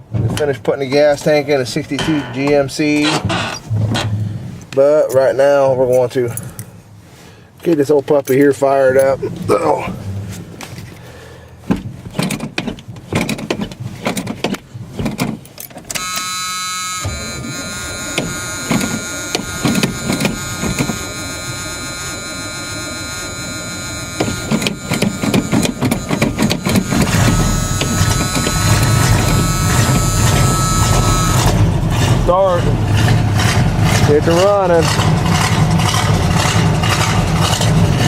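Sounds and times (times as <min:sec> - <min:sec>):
steady whine: 0:01.3 - 0:05.7, 0:15.9 - 0:38.0
engine knocks and clicks: 0:10.3 - 0:38.0
truck engine running: 0:15.9 - 0:38.0.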